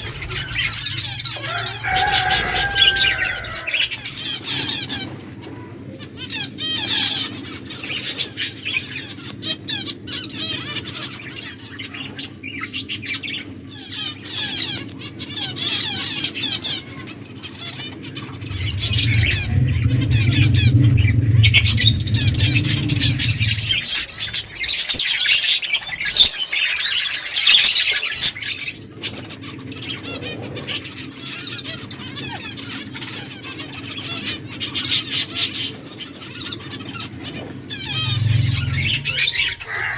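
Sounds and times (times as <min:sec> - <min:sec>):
low hum: 0:00.0 - 0:04.3, 0:18.3 - 0:24.7, 0:37.4 - 0:39.9
finches chirping: 0:00.0 - 0:04.4, 0:18.4 - 0:27.7, 0:37.7 - 0:39.9.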